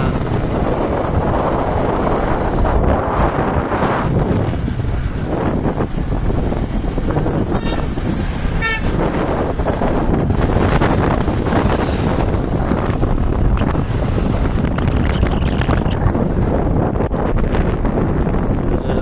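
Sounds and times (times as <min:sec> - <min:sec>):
wind rush and road noise: 0:00.0 - 0:19.0
short horn toots: 0:07.5 - 0:09.1.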